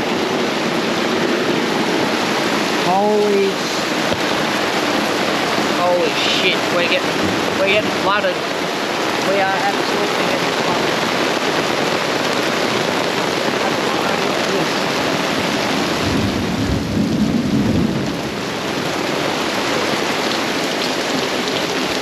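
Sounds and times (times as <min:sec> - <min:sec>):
heavy rain pouring: 0:00.0 - 0:22.0
low thunder rumble: 0:16.0 - 0:18.5.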